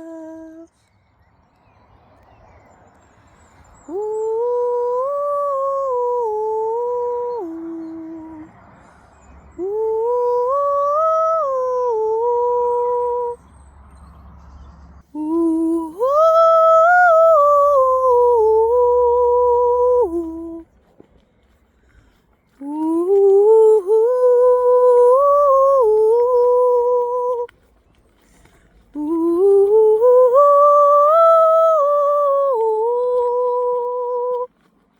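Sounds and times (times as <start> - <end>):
person singing wordless tones: 0.0 - 0.8, 3.8 - 8.6, 9.5 - 13.6, 15.0 - 20.7, 22.5 - 27.7, 28.8 - 34.5.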